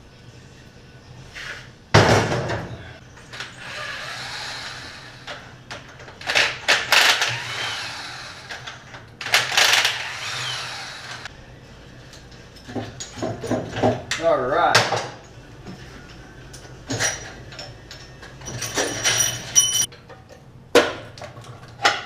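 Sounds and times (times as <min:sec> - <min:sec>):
metal parts clattering and scraping: 0:05.2 - 0:07.8, 0:16.0 - 0:20.3
metal engine parts clunking: 0:12.0 - 0:14.2, 0:14.8 - 0:22.0.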